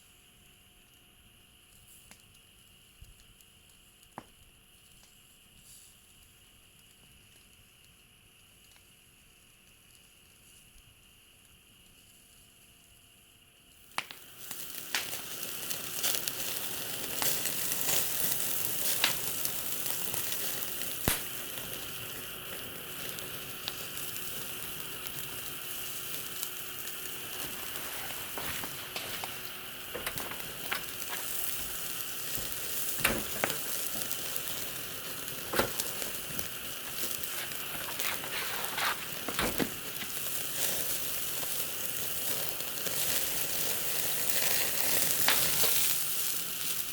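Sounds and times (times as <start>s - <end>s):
sharp pops and crackles: 0.5s - 12.2s, 13.6s - 46.9s
food sizzling in a pan: 13.7s - 46.9s.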